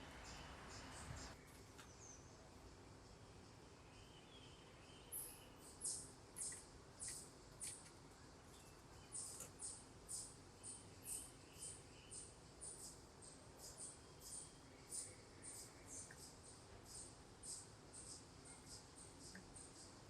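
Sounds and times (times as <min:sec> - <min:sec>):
bird chip calls: 0:05.1 - 0:07.8.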